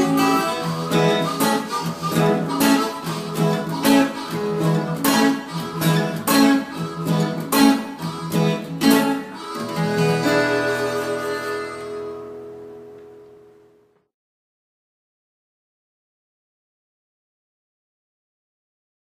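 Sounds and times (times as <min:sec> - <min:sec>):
acoustic guitar strumming blues: 0:00.0 - 0:13.6.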